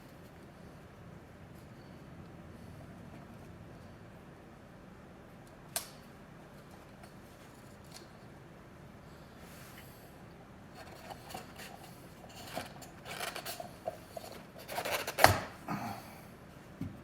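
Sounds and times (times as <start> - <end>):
scraping and rubbing: 10.8 - 15.2.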